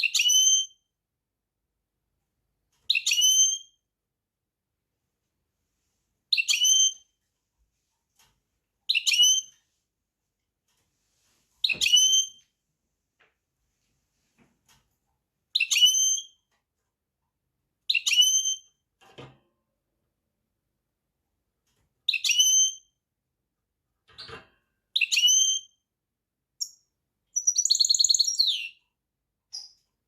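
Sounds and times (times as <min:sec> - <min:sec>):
finch whistled call: 0:27.4 - 0:28.7.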